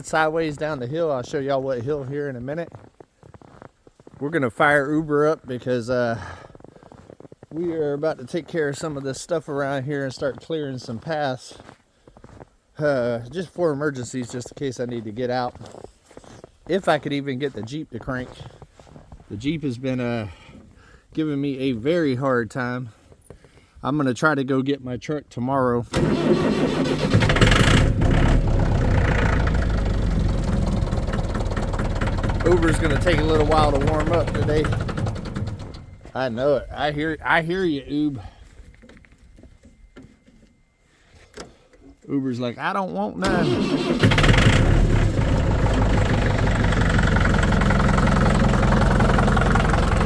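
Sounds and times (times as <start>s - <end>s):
tractor engine starting and idling: 25.9s - 37.6s, 43.2s - 50.0s.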